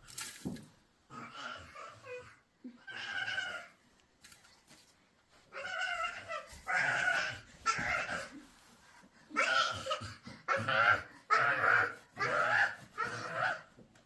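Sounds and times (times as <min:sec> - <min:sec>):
domestic animal crying out: 0:09.4 - 0:13.7.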